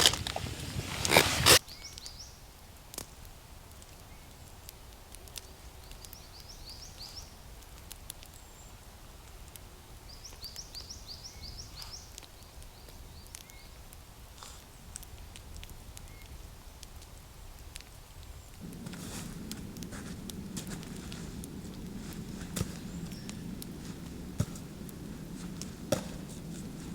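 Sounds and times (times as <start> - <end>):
small bird chirping: 18.7 - 25.6.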